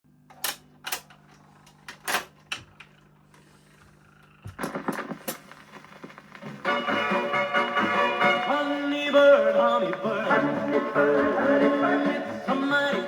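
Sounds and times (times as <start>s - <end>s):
record clicks and crackle: 4.5s - 8.7s
record music: 4.6s - 13.0s.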